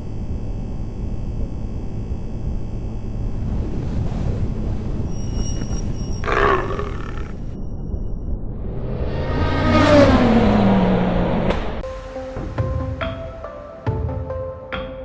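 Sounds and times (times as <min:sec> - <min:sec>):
deep low rumble: 0:00.0 - 0:11.8
big cat roaring: 0:06.2 - 0:07.4.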